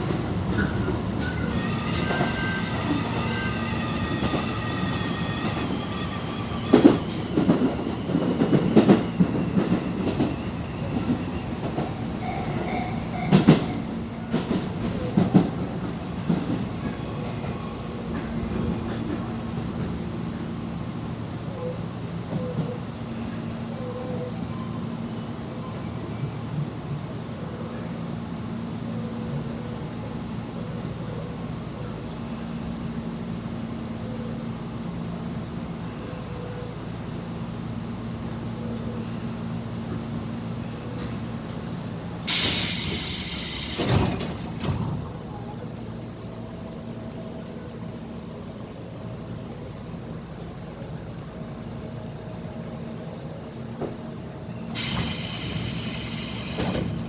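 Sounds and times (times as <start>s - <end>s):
electric train interior hum: 0.0s - 57.0s
compressed air hiss: 42.2s - 44.5s, 54.7s - 57.0s.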